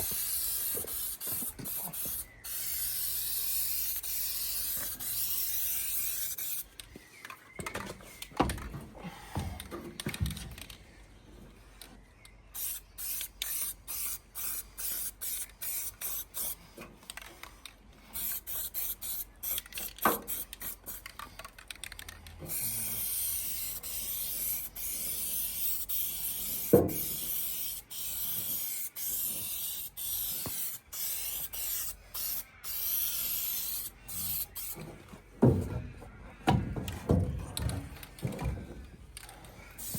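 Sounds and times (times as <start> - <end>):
spray paint hissing: 0.0 - 6.8, 12.6 - 16.6, 18.1 - 21.2, 22.5 - 34.8.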